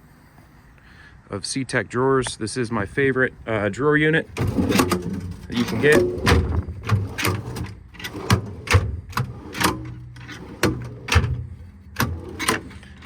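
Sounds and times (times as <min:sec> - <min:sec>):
drawers sliding open and shut: 0:04.3 - 0:13.0
drawer clicks and knocks: 0:04.4 - 0:12.8.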